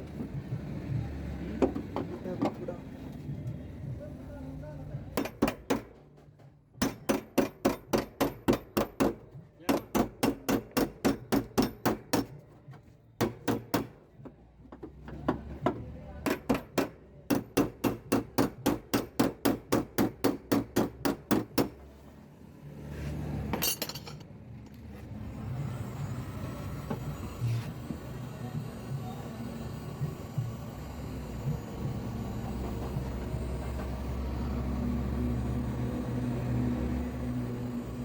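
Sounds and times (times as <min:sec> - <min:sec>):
hammer tapping sheet metal: 0:05.1 - 0:06.2, 0:06.8 - 0:12.4.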